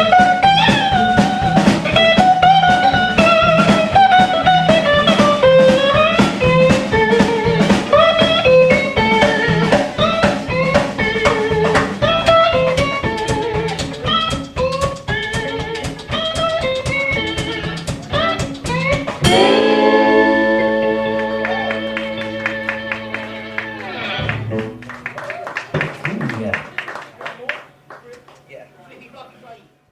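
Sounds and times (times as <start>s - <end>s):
fast electric guitar lead: 0.0s - 26.8s
drums: 0.0s - 29.6s
guitar chord ringing: 19.2s - 25.0s.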